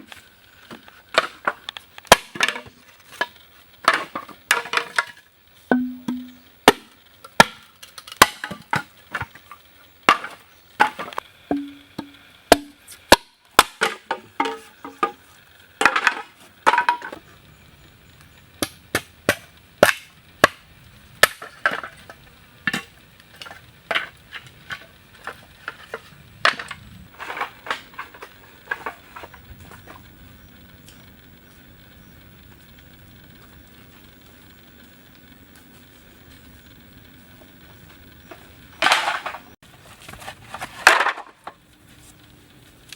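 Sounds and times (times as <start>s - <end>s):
hand tool striking wood: 5.7s - 7.6s, 10.1s - 15.2s.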